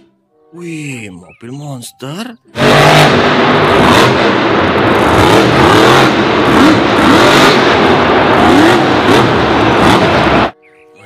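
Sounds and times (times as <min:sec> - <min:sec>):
car engine revving: 0:02.5 - 0:10.6
dense rushing noise: 0:02.6 - 0:10.6.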